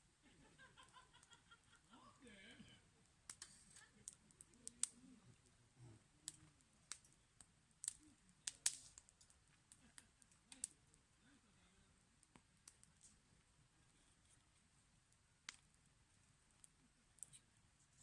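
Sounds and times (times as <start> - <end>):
wood fire crackling and popping: 0.7 - 1.5, 3.0 - 5.6, 6.2 - 11.2, 12.0 - 17.4.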